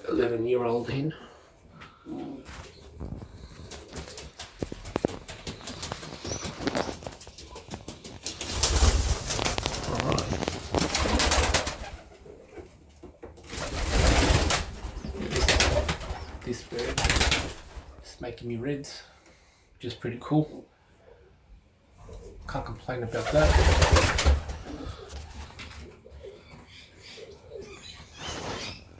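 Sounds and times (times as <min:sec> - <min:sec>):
pigeons cooing: 0:01.7 - 0:12.8, 0:23.2 - 0:28.9
pigeons scuffling: 0:01.7 - 0:18.0, 0:23.2 - 0:26.6
wings flapping: 0:02.5 - 0:12.7, 0:13.4 - 0:18.0, 0:23.1 - 0:26.0.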